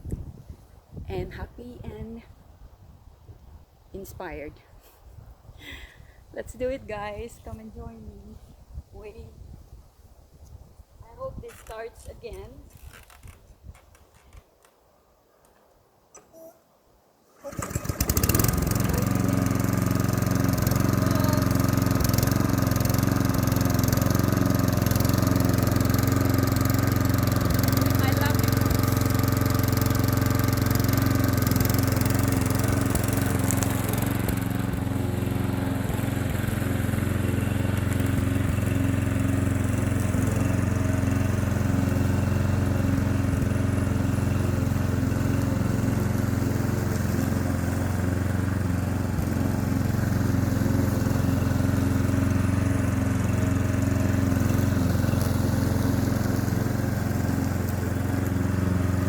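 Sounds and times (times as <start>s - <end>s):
lawn mower engine running: 17.3s - 59.0s.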